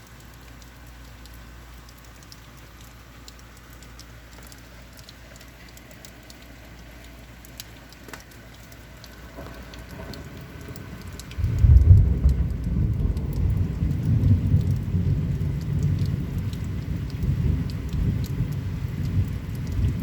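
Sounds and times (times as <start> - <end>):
rain falling: 0.0 - 20.0
raindrops ticking on surfaces: 0.0 - 20.0
low rumble of thunder: 9.3 - 20.0.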